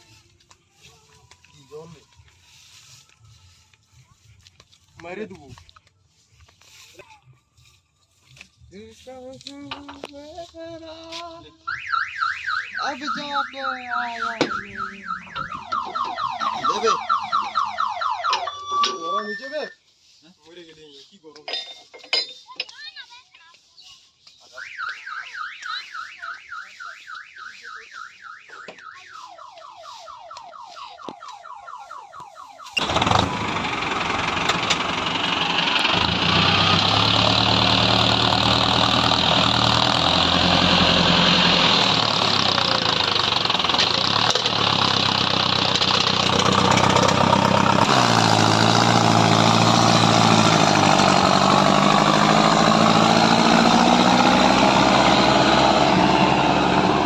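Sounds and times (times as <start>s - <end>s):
engine starter cranking: 32.8s - 52.0s
diesel engine revving: 32.8s - 57.0s.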